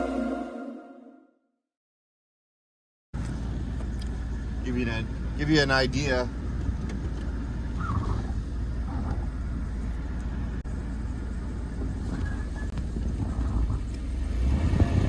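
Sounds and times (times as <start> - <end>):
vehicle driving through snow: 6.4 - 15.0.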